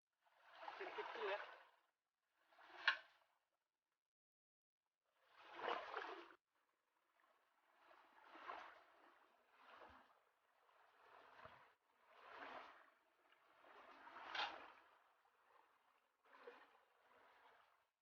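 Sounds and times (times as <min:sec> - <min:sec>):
river water sloshing: 0:00.3 - 0:01.8, 0:05.2 - 0:06.4, 0:07.0 - 0:17.9.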